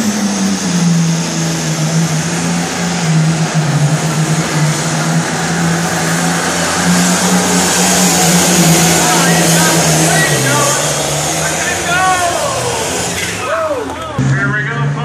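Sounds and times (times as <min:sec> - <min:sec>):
diesel engine running at high revs: 0:00.0 - 0:15.0.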